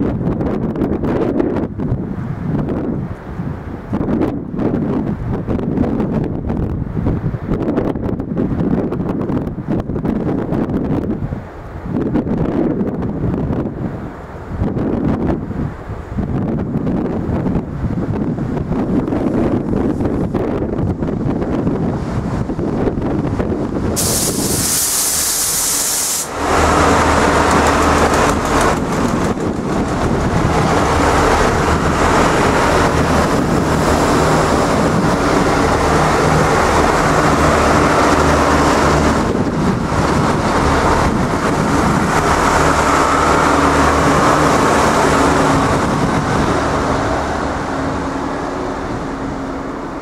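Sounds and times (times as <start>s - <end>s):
diesel engines droning: 23.6s - 50.0s
sharp high hiss: 24.0s - 26.6s
train wheels on rails: 24.0s - 50.0s.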